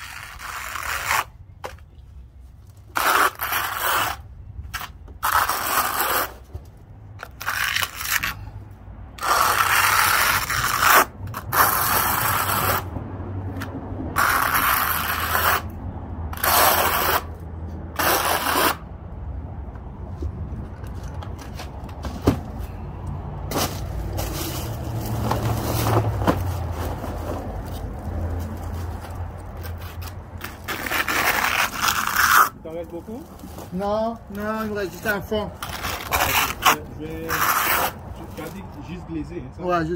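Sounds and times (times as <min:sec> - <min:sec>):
trowel scraping cement: 0:00.0 - 0:01.8, 0:02.9 - 0:06.5, 0:07.2 - 0:08.5, 0:09.2 - 0:12.9, 0:14.1 - 0:15.8, 0:16.4 - 0:18.8, 0:29.6 - 0:32.6, 0:35.6 - 0:38.6.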